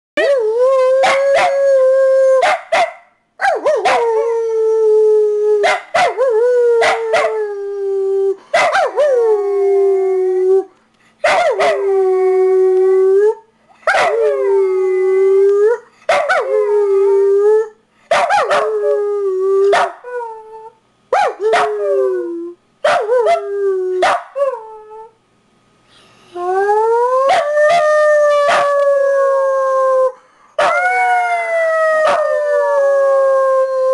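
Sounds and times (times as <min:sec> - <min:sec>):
dog howling: 0:00.2 - 0:02.0, 0:26.5 - 0:33.9.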